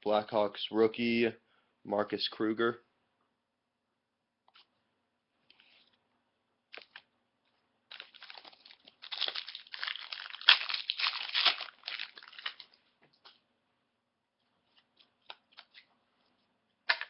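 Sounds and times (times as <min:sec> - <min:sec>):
wrapper tearing and crinkling: 0:07.9 - 0:12.7.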